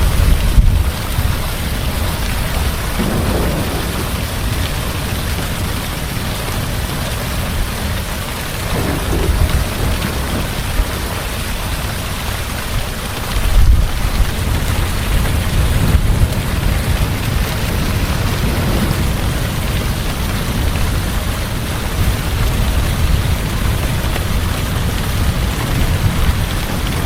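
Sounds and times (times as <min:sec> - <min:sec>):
heavy rain: 0:00.0 - 0:27.0
thunder rumbling: 0:00.0 - 0:27.0.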